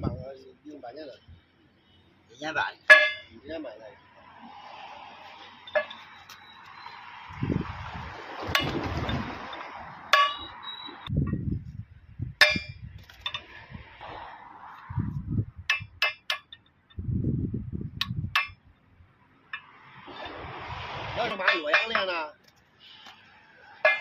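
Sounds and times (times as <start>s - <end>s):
metal tools clanking: 2.9s - 3.4s, 5.5s - 6.7s, 8.6s - 10.6s, 12.4s - 13.5s, 21.2s - 22.3s, 23.8s - 24.0s.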